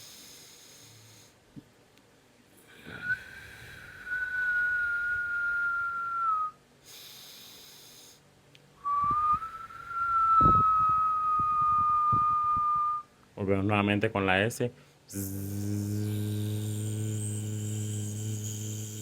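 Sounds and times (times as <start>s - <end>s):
person hissing through teeth: 15.1s - 19.0s.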